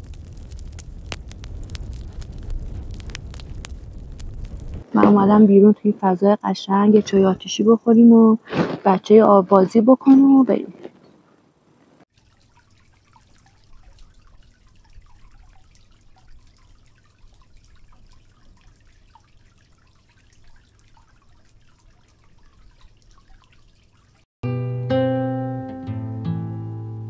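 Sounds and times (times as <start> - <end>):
water trickling and dripping: 0.0 - 4.9, 12.1 - 24.3
acoustic guitar music: 24.4 - 27.0.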